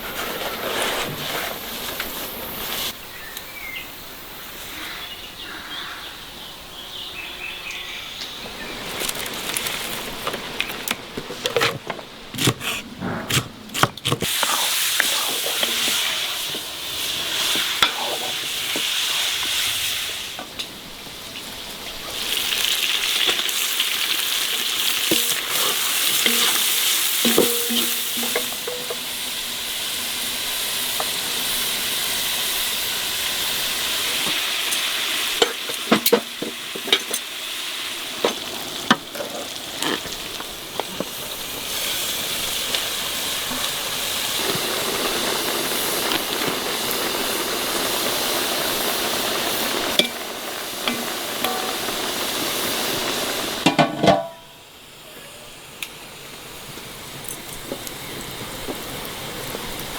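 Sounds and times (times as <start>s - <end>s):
food sizzling in hot oil: 14.1s - 59.9s
utensil knocking pan: 25.1s - 29.2s, 50.8s - 52.1s, 53.6s - 54.5s.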